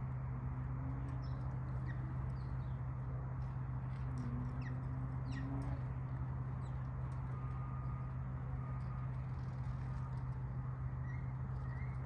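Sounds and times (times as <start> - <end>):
steady low hum: 0.0 - 12.0
birds chirping: 4.2 - 7.8.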